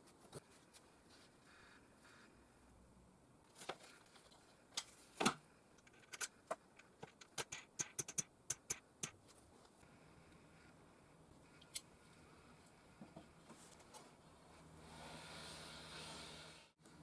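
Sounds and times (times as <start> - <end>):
small parts clicking and tapping: 5.7 - 9.2.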